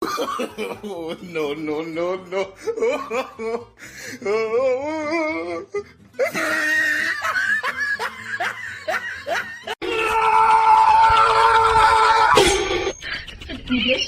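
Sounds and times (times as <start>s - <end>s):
person laughing: 0.0s - 9.8s, 12.8s - 14.0s.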